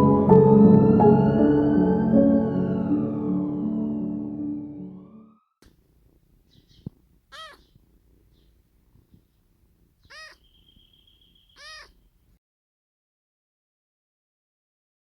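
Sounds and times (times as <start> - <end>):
cat meowing: 7.3 - 7.8, 10.0 - 10.7, 11.4 - 12.1.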